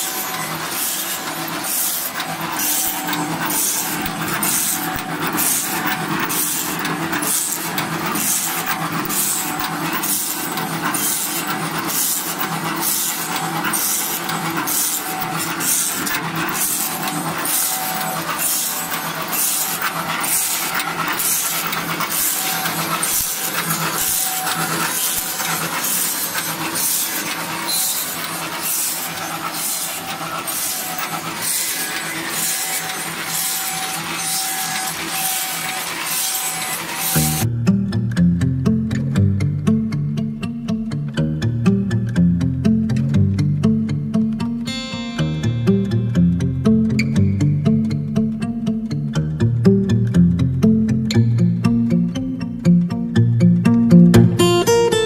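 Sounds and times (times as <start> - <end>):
machine scraping wood: 0.0 - 37.5
steady motor hum: 0.0 - 51.7.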